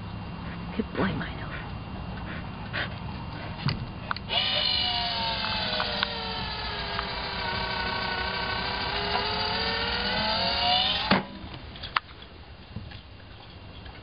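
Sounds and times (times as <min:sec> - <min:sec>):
ball launcher motor whining: 0:04.0 - 0:12.0.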